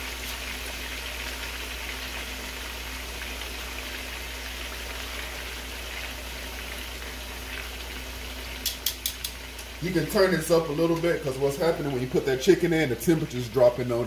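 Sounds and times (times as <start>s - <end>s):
chicken sizzling in oil: 0.0s - 14.0s.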